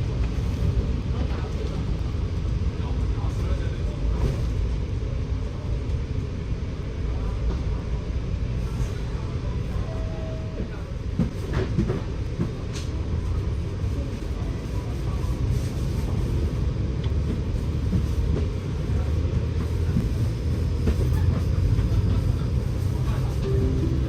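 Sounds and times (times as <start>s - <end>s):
bus engine and road rumble: 0.0s - 24.0s.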